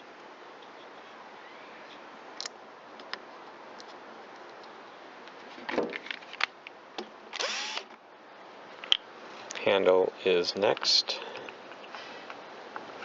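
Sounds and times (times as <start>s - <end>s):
cordless power driver spinning: 7.4s - 7.9s.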